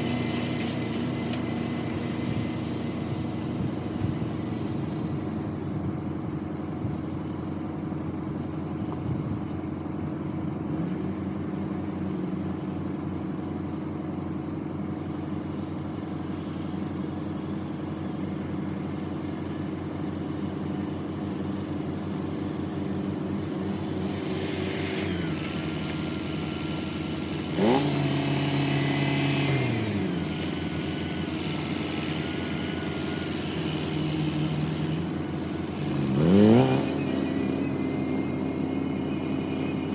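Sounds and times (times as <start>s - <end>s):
diesel engine running: 0.0s - 39.9s
thin high whine: 23.1s - 39.9s.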